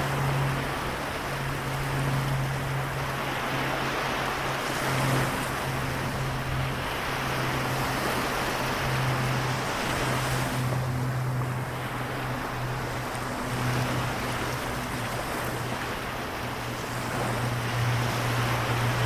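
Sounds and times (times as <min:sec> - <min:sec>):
waves washing on shore: 0:00.0 - 0:19.0.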